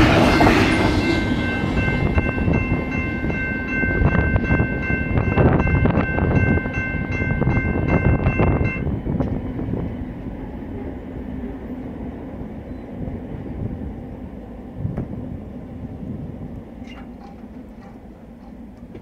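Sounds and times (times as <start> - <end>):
high ringing tone: 0.0 - 9.0
train rumble: 0.0 - 19.0
train wheels clicking over rails: 16.8 - 19.0.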